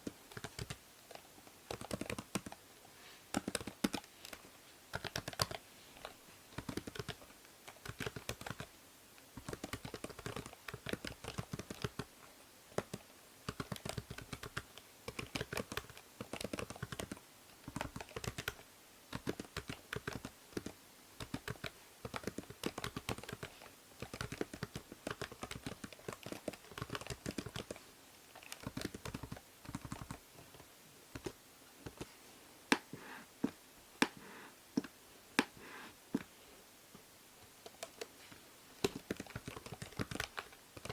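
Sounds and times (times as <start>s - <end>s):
faint microphone hiss: 0.0s - 40.9s
computer keyboard typing: 0.3s - 2.6s, 3.3s - 8.7s, 9.4s - 12.1s, 12.8s - 27.8s, 28.4s - 30.6s, 38.8s - 40.9s.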